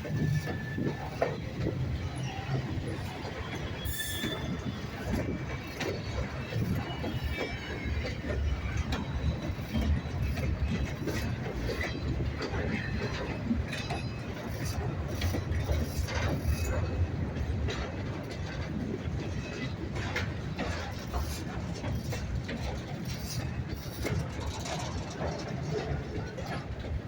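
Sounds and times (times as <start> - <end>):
freight train rumbling: 0.0 - 27.0
wheels clanking over rail joints: 0.0 - 27.0.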